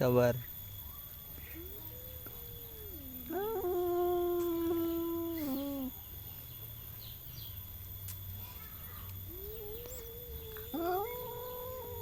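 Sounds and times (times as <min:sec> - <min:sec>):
cats yowling: 0:00.8 - 0:06.0, 0:09.2 - 0:12.0
cat moaning low: 0:01.4 - 0:06.0, 0:09.3 - 0:12.0.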